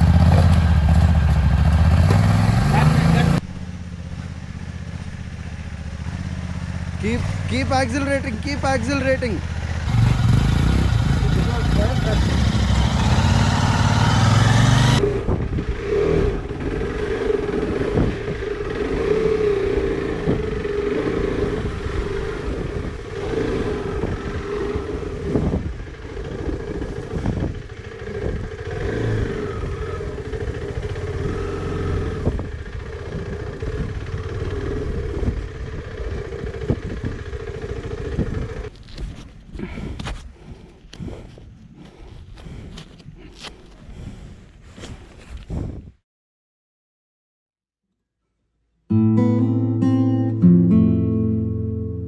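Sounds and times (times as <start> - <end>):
motorcycle engine running: 0.0 - 39.4.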